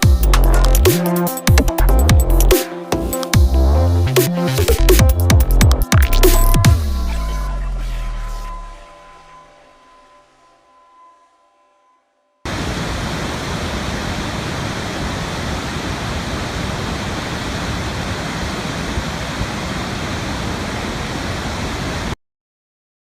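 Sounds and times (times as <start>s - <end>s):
water rushing: 12.5s - 22.2s.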